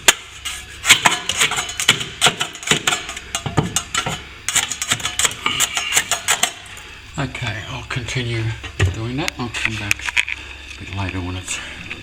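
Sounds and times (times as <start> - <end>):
metal tool scraping plaster: 0.4 - 3.2, 3.8 - 6.7.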